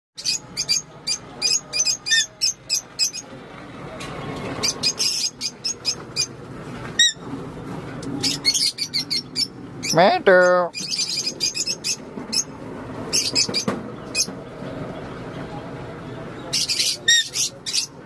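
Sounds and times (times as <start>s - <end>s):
parakeet chirping: 0.2s - 3.3s, 4.6s - 6.4s, 7.0s - 7.3s, 8.2s - 14.4s, 16.4s - 18.0s.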